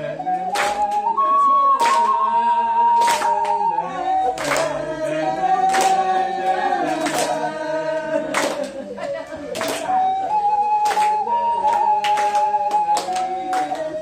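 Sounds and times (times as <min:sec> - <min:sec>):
group singing slow song: 0:00.0 - 0:10.8
sharp clap beat: 0:00.3 - 0:14.0.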